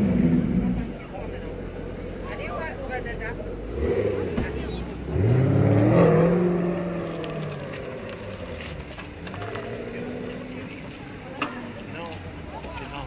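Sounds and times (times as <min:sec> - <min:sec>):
car engine revving: 0:00.0 - 0:02.1, 0:03.0 - 0:10.9
other cars running: 0:00.0 - 0:13.0.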